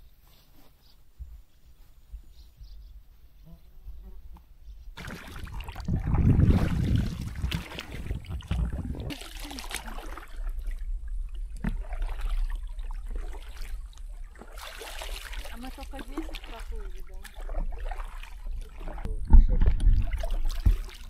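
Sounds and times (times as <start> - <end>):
water splashing and trickling: 5.0 - 21.0
wind rumble on microphone: 5.4 - 9.1.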